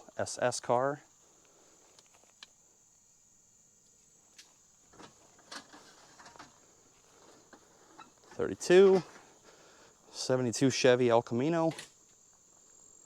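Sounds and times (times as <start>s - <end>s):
crickets chirping: 0.0s - 13.0s
rustling: 3.8s - 9.8s.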